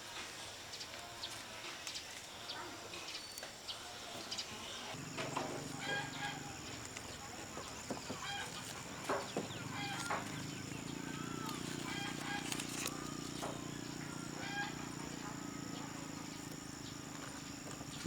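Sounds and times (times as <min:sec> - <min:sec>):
chickens clucking: 0:04.1 - 0:18.0.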